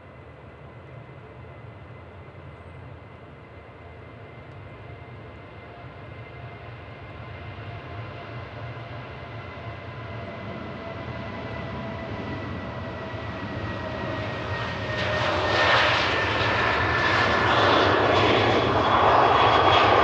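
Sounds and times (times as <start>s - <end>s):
jet engines rumbling and whining: 0.0s - 20.0s.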